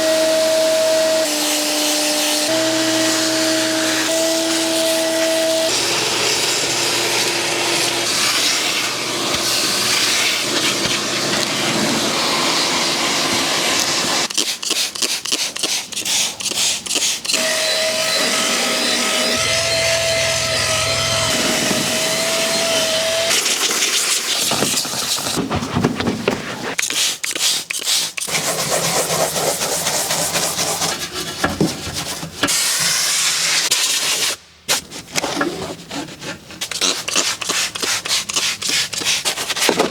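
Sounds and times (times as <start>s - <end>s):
vacuum cleaner whining: 0.0s - 14.3s, 17.3s - 25.4s
brush scrubbing: 26.8s - 32.3s, 35.8s - 39.9s.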